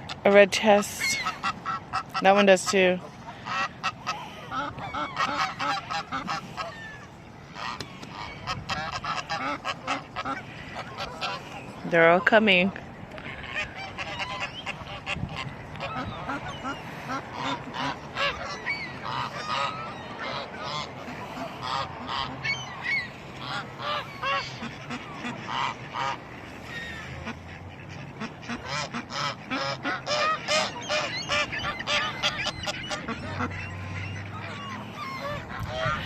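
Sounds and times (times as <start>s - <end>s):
gulls and ducks squawking: 0.8s - 36.0s.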